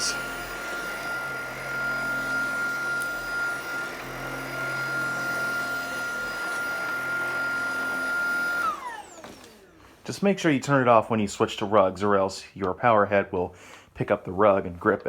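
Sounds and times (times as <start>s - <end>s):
cordless vacuum running: 0.0s - 11.0s.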